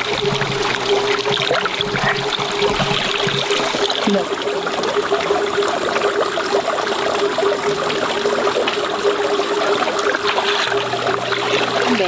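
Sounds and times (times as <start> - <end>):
low hum: 0.0 - 4.2, 7.7 - 12.0
water trickling: 0.0 - 12.0.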